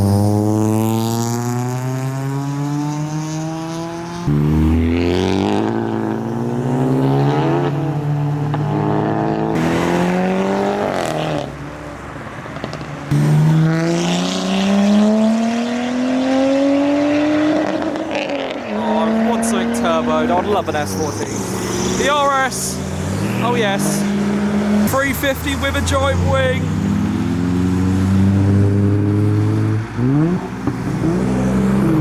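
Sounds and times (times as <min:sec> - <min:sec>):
cars accelerating away: 0:00.0 - 0:32.0.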